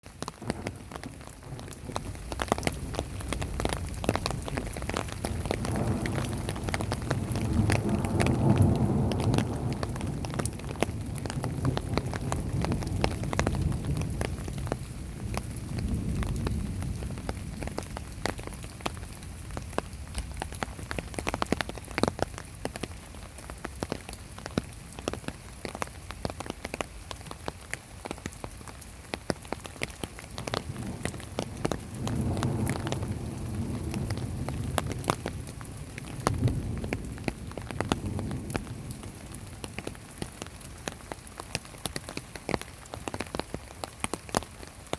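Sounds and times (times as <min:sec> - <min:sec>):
heavy rain falling: 0:00.0 - 0:44.9
raindrops ticking on hard surface: 0:00.0 - 0:44.9
low rolling thunder: 0:00.4 - 0:21.2, 0:30.4 - 0:40.5.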